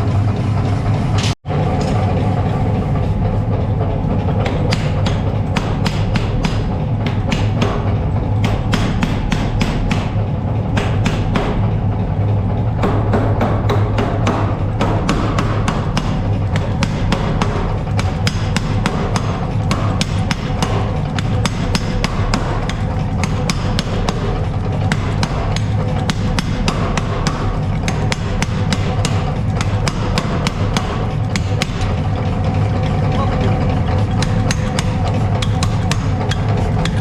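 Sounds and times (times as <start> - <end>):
low machine hum: 0.0 - 37.0
hammer strikes on steel: 4.4 - 11.7, 12.8 - 32.0, 34.1 - 37.0.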